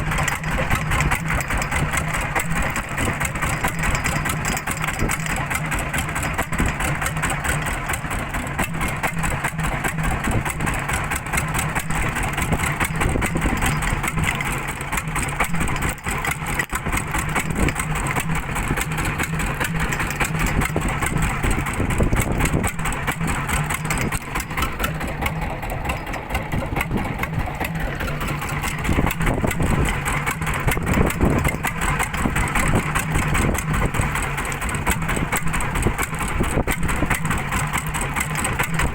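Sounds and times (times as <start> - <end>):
boat engine humming: 0.0 - 38.9.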